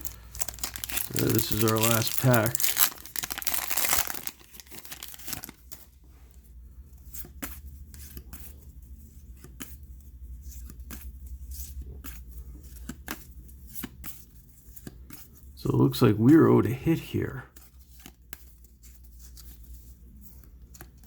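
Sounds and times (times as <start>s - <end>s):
cards snapping and rustling: 0.0s - 5.8s
wrapper tearing: 0.0s - 5.8s.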